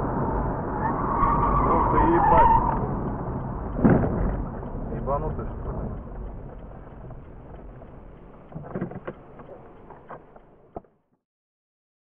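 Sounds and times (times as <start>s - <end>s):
car road and cabin noise: 0.0s - 10.9s
sharp knocks: 3.8s - 4.7s.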